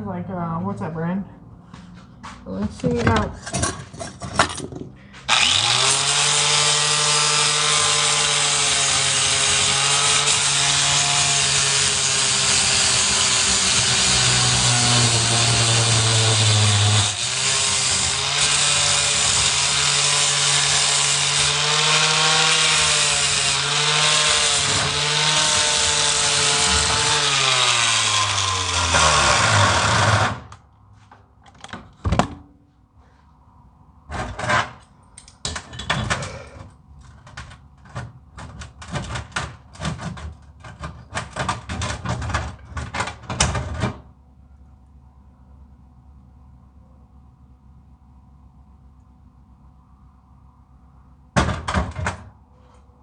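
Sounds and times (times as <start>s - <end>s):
angle grinder running: 5.2s - 30.5s.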